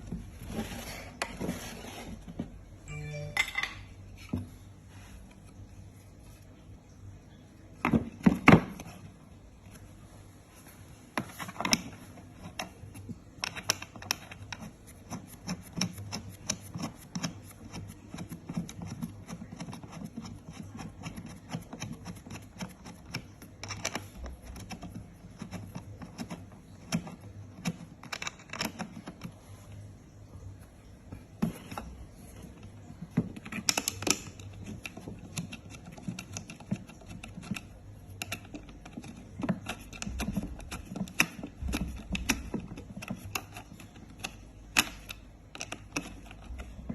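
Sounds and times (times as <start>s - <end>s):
plastic parts clicking and tapping: 11.2s - 29.4s, 31.1s - 46.9s.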